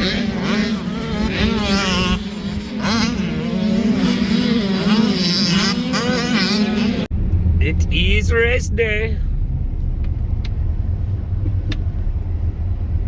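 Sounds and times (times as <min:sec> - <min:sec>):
dirt bike engines revving: 0:00.0 - 0:09.9.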